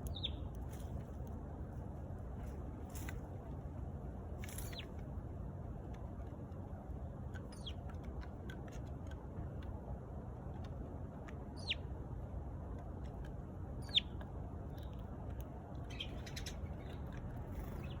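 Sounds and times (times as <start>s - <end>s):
sparrow chirps: 0.0s - 0.5s, 4.5s - 4.9s, 7.5s - 7.8s, 11.6s - 11.9s, 13.8s - 15.0s, 15.8s - 18.0s
low background noise: 0.0s - 18.0s.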